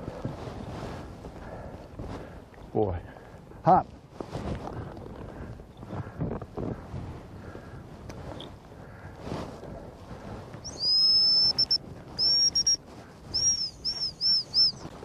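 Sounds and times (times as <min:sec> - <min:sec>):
dog whistle long blasts: 0:10.6 - 0:14.8
dog whistle short pips: 0:10.7 - 0:12.8, 0:13.4 - 0:14.8.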